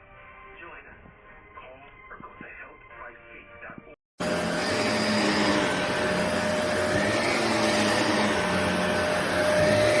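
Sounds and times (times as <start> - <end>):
vacuum cleaner running: 4.2 - 10.0.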